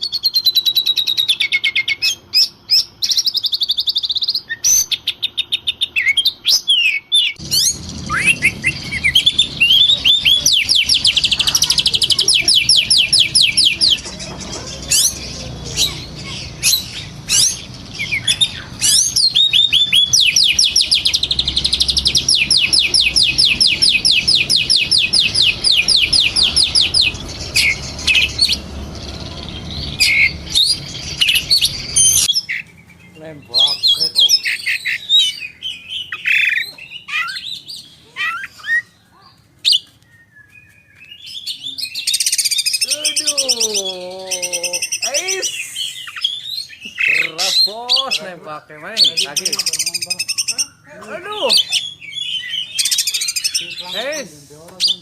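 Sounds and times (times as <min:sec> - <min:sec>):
bird singing rapid high notes: 0:00.0 - 0:39.0, 0:39.7 - 0:55.0
bird whistles sweeping up and down: 0:05.9 - 0:11.5, 0:14.8 - 0:28.6, 0:29.8 - 0:33.0, 0:39.6 - 0:42.9, 0:44.8 - 0:48.0
steady low rumble: 0:07.4 - 0:32.3.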